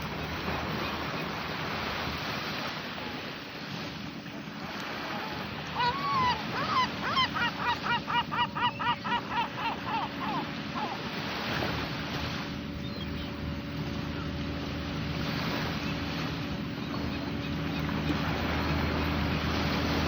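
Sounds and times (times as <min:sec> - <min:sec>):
waves breaking on shore: 0:00.0 - 0:20.0
bird calling repeated notes: 0:05.7 - 0:11.0.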